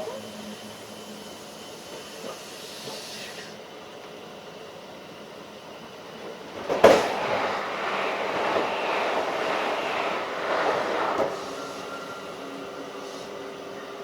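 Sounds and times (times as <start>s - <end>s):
train rumble on board: 4.9s - 14.0s
rushing noise: 6.1s - 14.0s
sudden loud whoosh: 6.4s - 13.0s.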